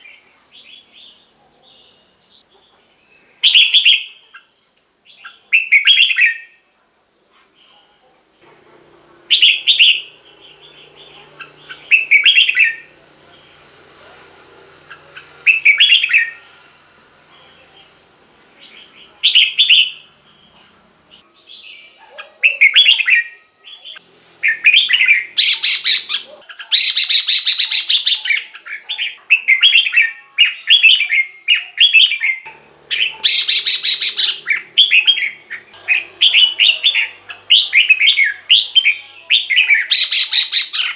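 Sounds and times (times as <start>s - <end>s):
bird singing whistled phrases: 3.1s - 4.5s, 5.1s - 6.6s, 9.3s - 12.9s, 14.9s - 16.5s, 18.6s - 20.1s, 21.5s - 40.9s.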